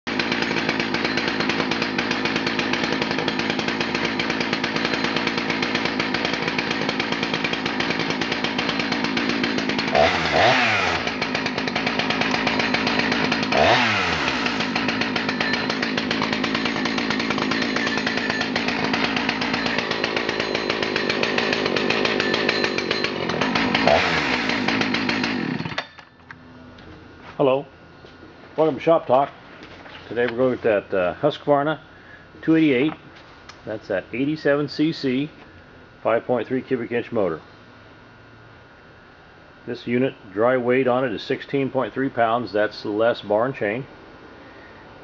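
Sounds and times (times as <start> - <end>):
chainsaw throttle blips: 0.1 - 26.0
chainsaw idling: 0.1 - 26.4.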